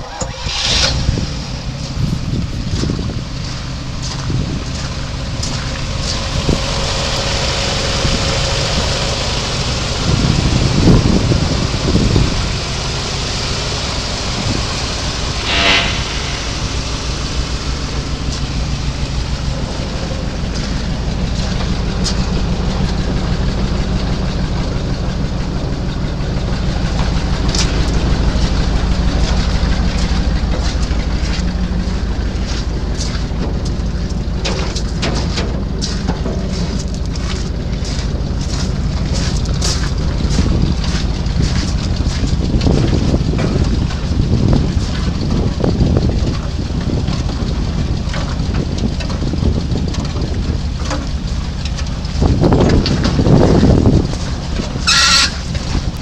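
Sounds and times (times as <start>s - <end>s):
truck engine running: 0.0s - 56.0s
brief high squeal: 15.2s - 18.9s, 54.8s - 55.4s.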